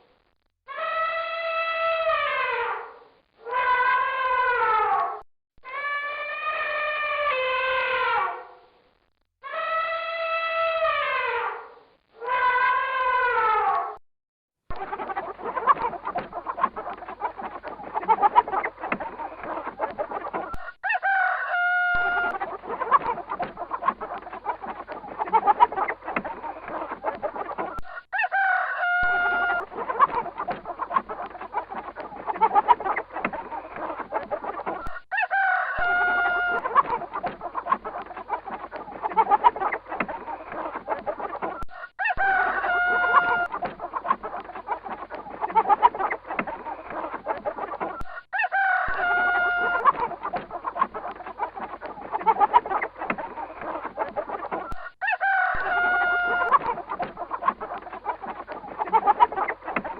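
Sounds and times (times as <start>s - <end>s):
chickens clucking: 14.7s - 59.9s
rooster crowing: 20.6s - 23.0s, 27.8s - 30.1s, 34.9s - 36.9s, 41.6s - 43.7s, 48.0s - 50.1s, 54.8s - 56.7s.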